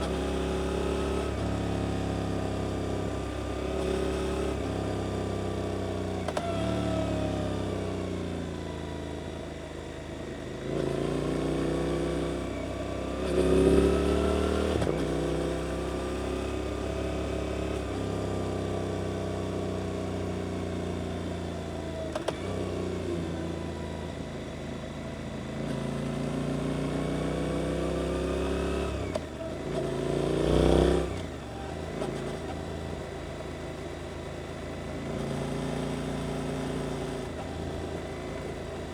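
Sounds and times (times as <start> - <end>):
motorcycle engine revving: 10.6 - 24.4, 25.2 - 33.9.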